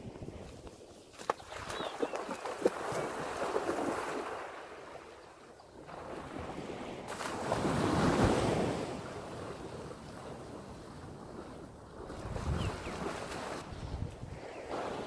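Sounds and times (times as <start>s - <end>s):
wind buffeting microphone: 7.6s - 15.0s.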